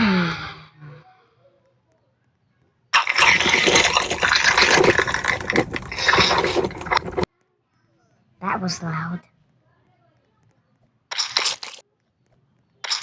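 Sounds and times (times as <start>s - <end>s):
harsh rushing and crackling noise: 3.0s - 7.3s.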